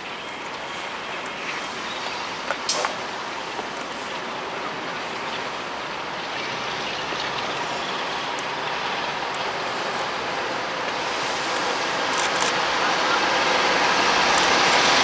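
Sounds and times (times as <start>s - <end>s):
train rail noise rushing: 0.0s - 15.0s
sharp clicks: 14.3s - 14.6s.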